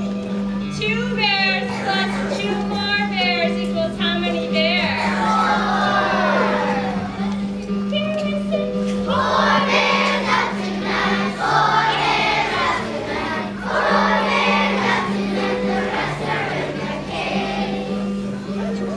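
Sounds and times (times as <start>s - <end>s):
sustained low instrumental notes: 1.6s - 18.9s
children singing together: 5.0s - 7.4s, 9.1s - 18.7s.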